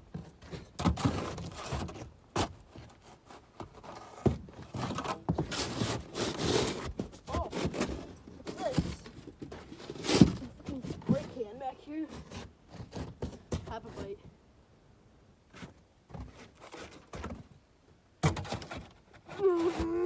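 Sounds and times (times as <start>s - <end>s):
scraping and rustling: 0.1s - 14.3s, 15.5s - 17.6s, 18.2s - 20.0s
knocks and thuds of objects: 18.2s - 18.9s.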